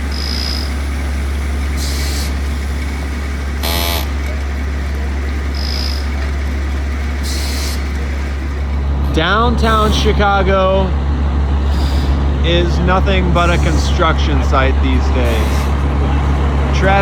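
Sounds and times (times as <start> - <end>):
street traffic engine rumble: 0.0 - 17.0
short hisses: 11.6 - 12.3.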